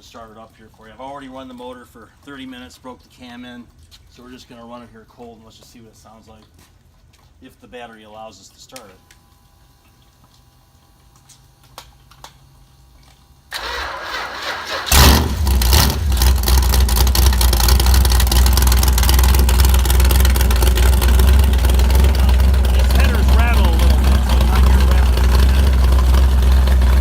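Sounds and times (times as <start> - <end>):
starter motor cranking: 13.5 - 27.0
engine running loud: 13.6 - 27.0.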